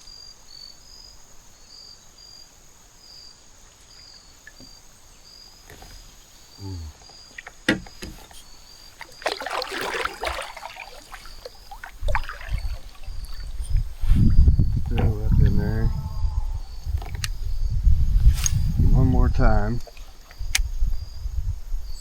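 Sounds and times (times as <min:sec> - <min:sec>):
insects chirping: 0:00.0 - 0:22.0
low thumps: 0:11.8 - 0:19.5.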